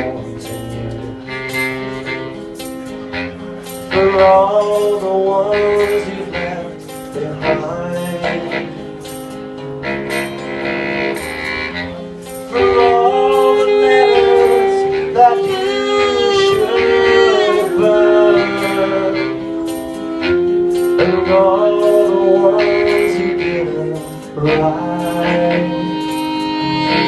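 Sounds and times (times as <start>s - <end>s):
live band music with singing: 0.0s - 27.0s.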